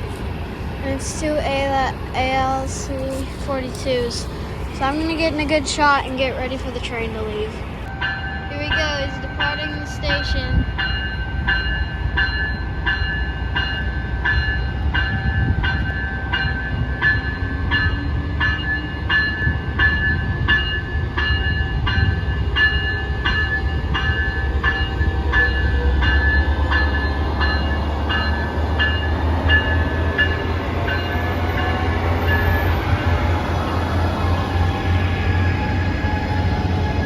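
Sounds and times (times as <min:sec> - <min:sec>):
diesel locomotives rumbling: 0:00.0 - 0:37.0
train bell ringing: 0:00.8 - 0:37.0.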